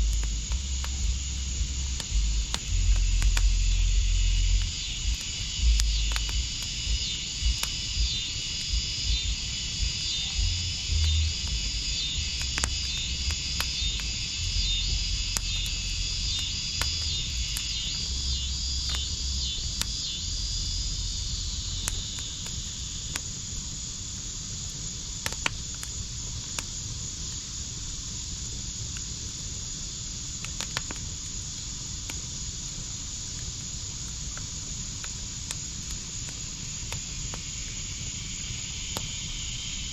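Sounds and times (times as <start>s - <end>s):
low rumble: 0.0s - 22.2s
insect chirping: 0.0s - 39.9s
wood fire crackling and popping: 0.0s - 39.9s.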